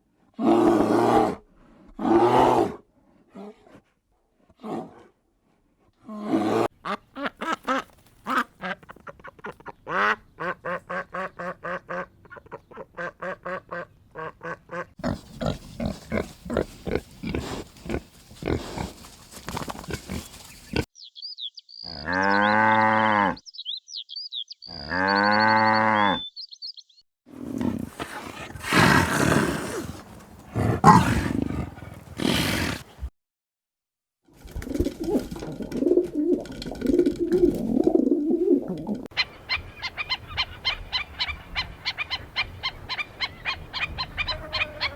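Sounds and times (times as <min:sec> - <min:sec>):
small birds chirping: 0:19.8 - 0:22.6, 0:23.4 - 0:33.1
farm animal calls: 0:21.8 - 0:23.4, 0:24.6 - 0:26.4, 0:27.4 - 0:33.1, 0:39.2 - 0:44.9.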